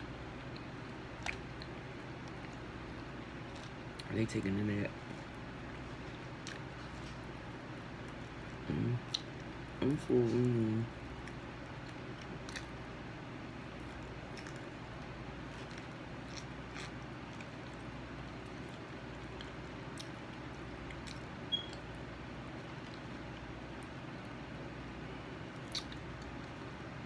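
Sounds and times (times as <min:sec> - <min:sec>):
low room hum: 0:00.0 - 0:27.0
faint chewing: 0:00.4 - 0:24.6, 0:25.5 - 0:27.0.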